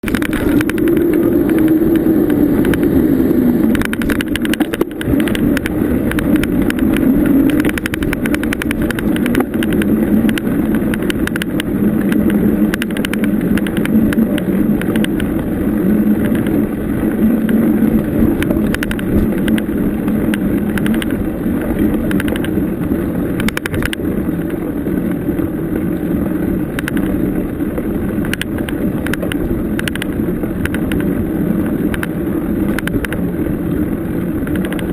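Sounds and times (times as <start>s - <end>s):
bike rattling and knocking: 0.0s - 2.9s, 3.7s - 15.4s, 17.4s - 22.6s, 23.4s - 24.6s, 28.2s - 31.1s, 34.4s - 34.9s
bicycle rolling over bumpy trail: 0.0s - 34.9s.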